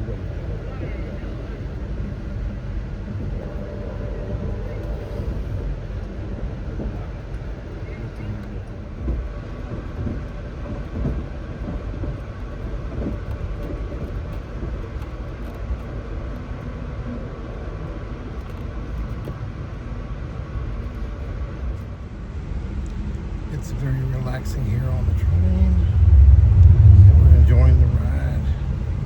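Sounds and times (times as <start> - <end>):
passenger train rumbling: 0.0 - 29.0.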